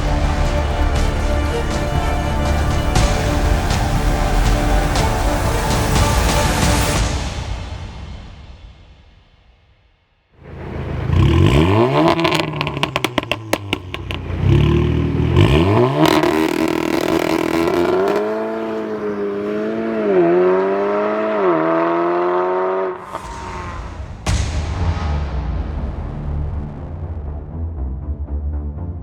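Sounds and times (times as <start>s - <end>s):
car engine revving: 10.4s - 24.5s
exhaust crackles and pops: 10.6s - 18.9s.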